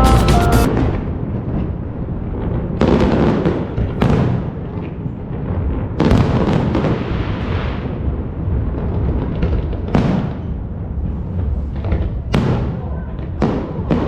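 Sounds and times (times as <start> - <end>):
loud booms with low rumble: 5.1 - 14.0.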